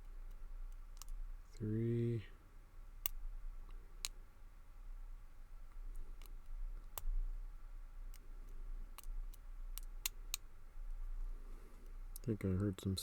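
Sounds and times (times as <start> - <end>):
lock pick clicking: 0.3 - 1.2, 9.0 - 10.5.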